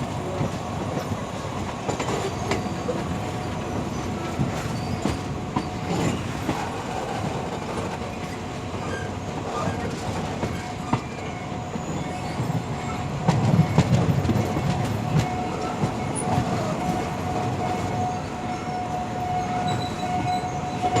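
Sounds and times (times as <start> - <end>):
train cars rumbling: 0.0 - 21.0.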